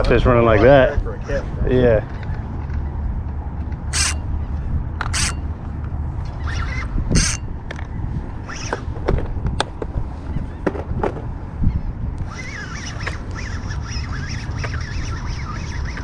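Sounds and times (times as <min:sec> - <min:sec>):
fishing reel drag zipping: 0:03.9 - 0:04.3, 0:05.0 - 0:05.5, 0:06.4 - 0:07.4
wind on microphone: 0:03.9 - 0:16.0.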